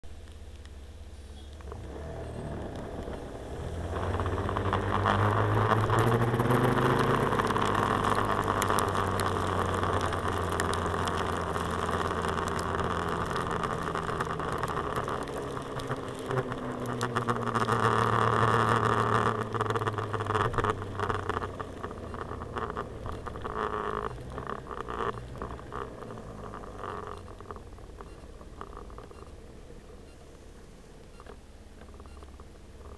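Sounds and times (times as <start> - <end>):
scooter engine: 0.4 - 32.9.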